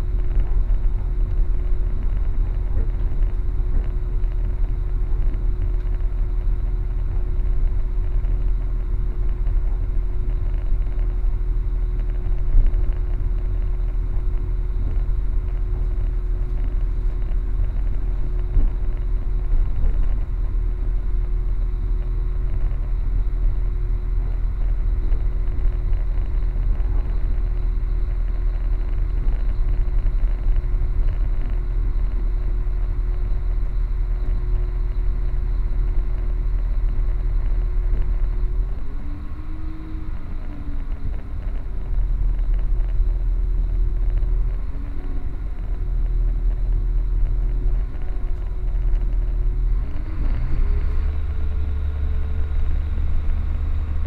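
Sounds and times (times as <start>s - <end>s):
constant hum: 0.0s - 54.0s
train rumble inside carriage: 0.0s - 54.0s.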